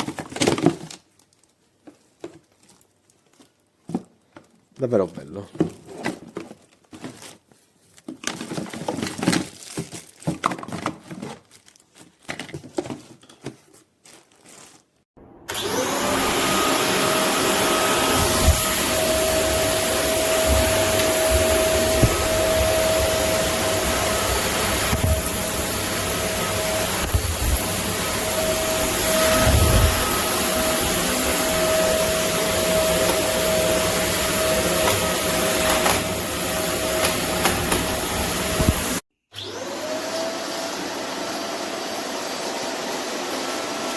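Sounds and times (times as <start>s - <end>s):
vacuum cleaner motor whining: 15.3s - 43.9s.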